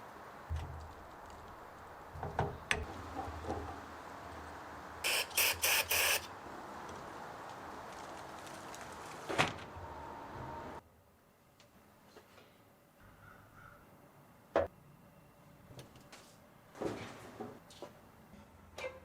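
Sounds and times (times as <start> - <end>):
hissing spray bursts: 5.0 - 6.3.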